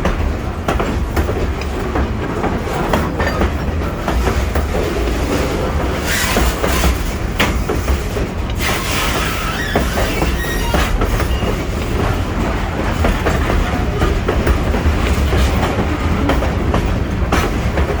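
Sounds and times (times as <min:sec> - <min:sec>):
freight train rumbling: 0:00.0 - 0:18.0
wheels clattering over rail joints: 0:00.0 - 0:18.0
faint high wheel squeals: 0:08.6 - 0:11.7.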